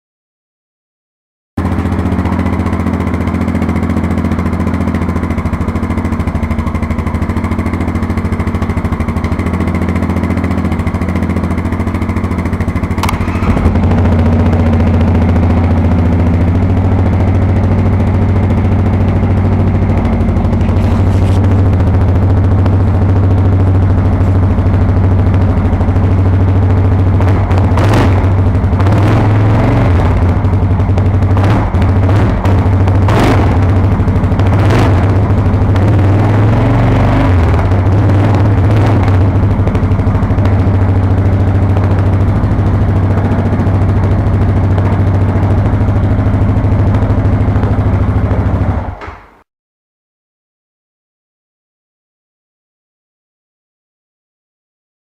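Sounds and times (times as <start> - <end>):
atv engine idling: 1.6 - 49.2.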